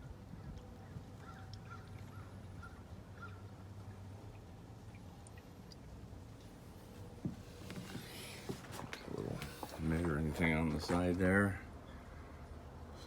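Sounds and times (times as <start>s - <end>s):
low steady hum: 0.0s - 13.0s
oil glugging through a funnel: 7.4s - 11.6s.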